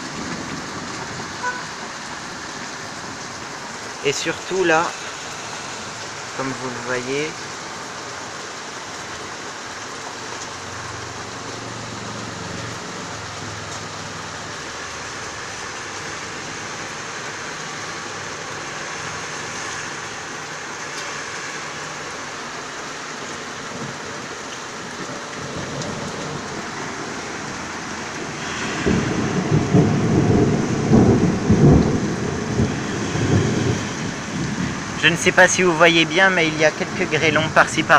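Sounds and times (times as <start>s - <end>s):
heavy rain falling: 0.0s - 37.9s
thunder rumbling: 23.5s - 37.9s.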